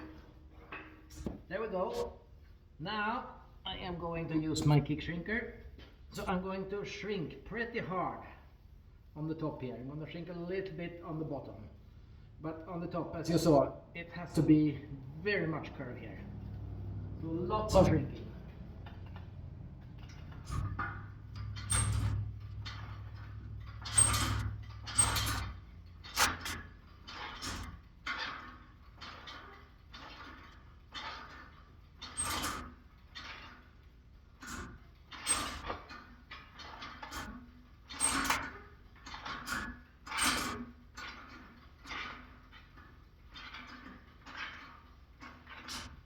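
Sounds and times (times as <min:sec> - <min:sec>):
metal shrinker clunking: 0:13.4 - 0:33.6, 0:34.4 - 0:36.0.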